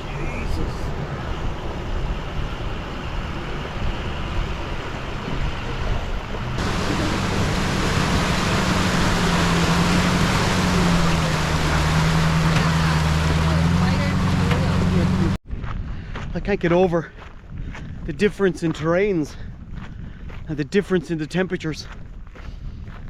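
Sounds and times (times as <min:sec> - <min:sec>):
steady low hum: 0:00.0 - 0:15.4
river water rushing: 0:06.4 - 0:15.4.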